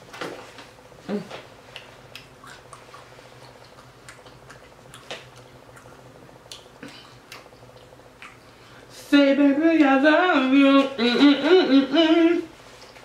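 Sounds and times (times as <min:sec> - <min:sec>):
person chewing food: 0:01.6 - 0:08.8.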